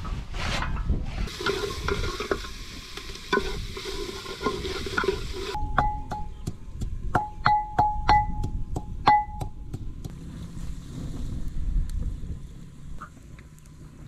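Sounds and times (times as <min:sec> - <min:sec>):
food sizzling in a pot: 0:01.3 - 0:05.6
ladle scraping and clinking pot: 0:01.3 - 0:05.6.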